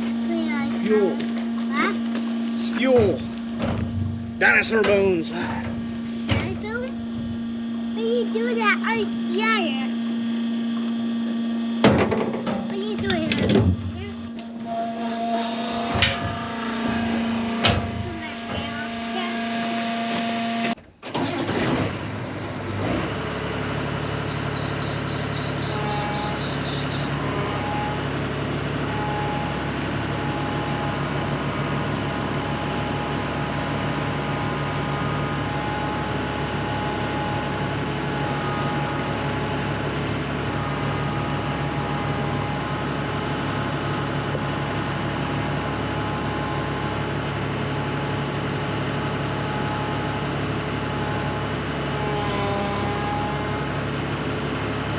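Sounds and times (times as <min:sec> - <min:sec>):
combine harvester engine running: 0:00.0 - 0:54.9.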